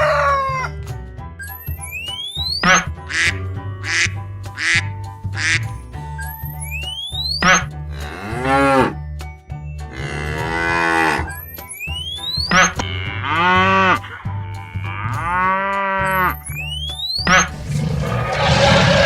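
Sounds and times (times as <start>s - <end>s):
children's music: 0.0s - 19.0s
duck quacks: 2.6s - 5.6s
cow moos: 8.0s - 9.0s, 9.9s - 11.3s, 12.7s - 16.4s, 17.3s - 19.0s.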